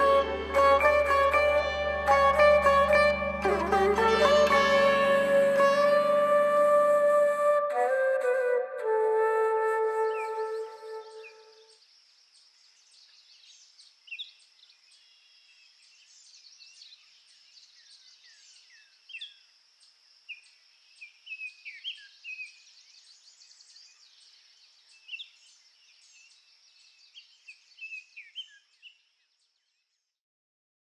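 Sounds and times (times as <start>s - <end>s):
high-pitched drone: 0.0s - 7.0s.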